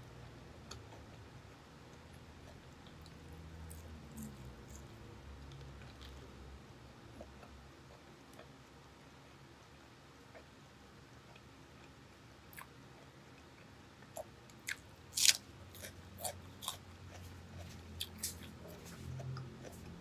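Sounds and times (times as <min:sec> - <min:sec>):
person chewing crisp food: 0:02.4 - 0:06.4, 0:11.3 - 0:20.0.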